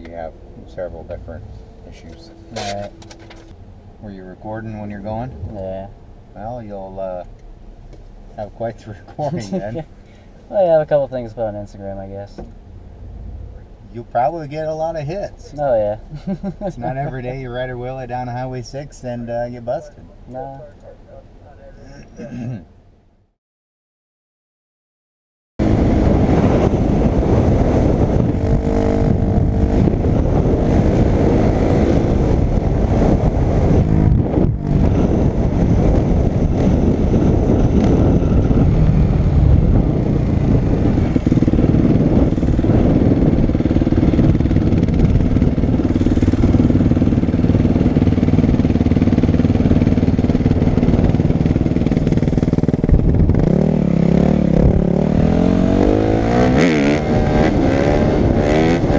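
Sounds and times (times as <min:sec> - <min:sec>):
dirt bike engine revving: 0:25.6 - 0:58.9.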